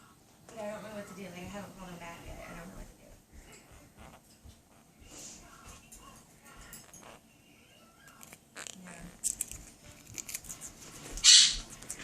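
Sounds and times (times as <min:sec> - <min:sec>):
parrot crunching a cracker: 0:06.8 - 0:07.2, 0:08.1 - 0:12.0.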